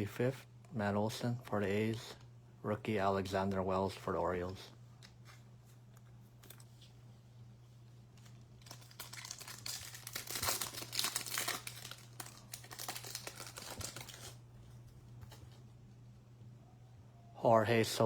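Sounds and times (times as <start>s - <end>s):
steady low hum: 0.0s - 18.0s
wrapper tearing and crinkling: 8.5s - 14.4s.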